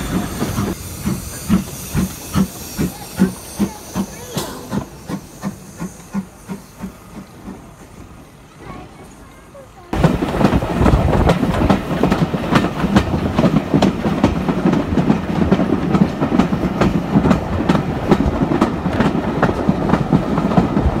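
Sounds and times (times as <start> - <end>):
railway carriage rumble: 0.0 - 21.0.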